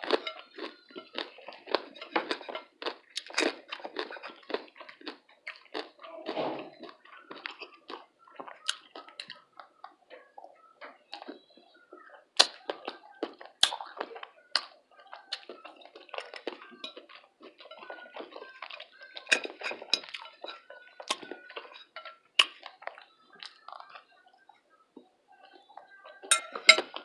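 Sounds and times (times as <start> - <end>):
chewing with crunches: 0.0 - 27.0
wet mouth noises: 12.4 - 16.6.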